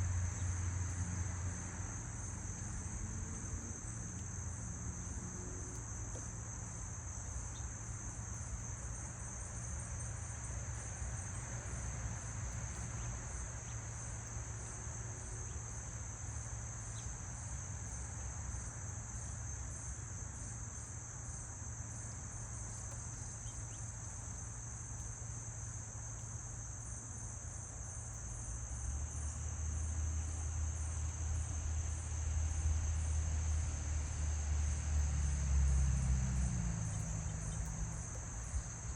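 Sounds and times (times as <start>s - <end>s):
insects trilling: 0.1s - 38.9s.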